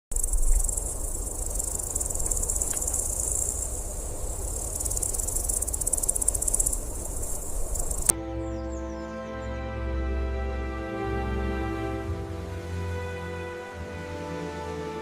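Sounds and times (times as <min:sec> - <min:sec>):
insects trilling: 0:00.1 - 0:08.1.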